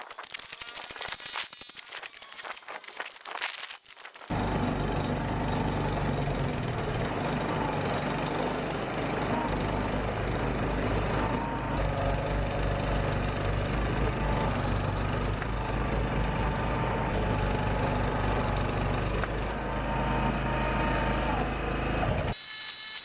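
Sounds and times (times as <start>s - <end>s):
snowblower engine running: 4.3s - 22.4s.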